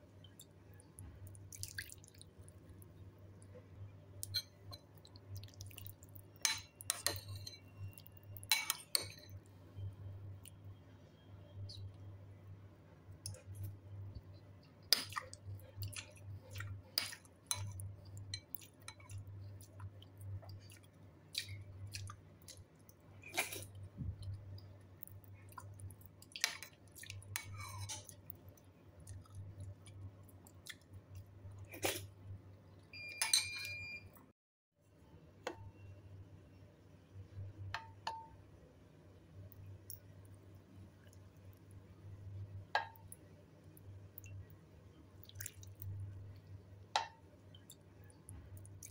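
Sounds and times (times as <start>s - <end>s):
low steady hum: 0.0s - 48.9s
chewing food: 0.2s - 2.9s, 4.2s - 7.2s, 14.6s - 32.1s, 45.2s - 46.6s, 47.5s - 48.9s
metal spoon clinking on bowl: 8.4s - 9.4s, 33.1s - 33.9s.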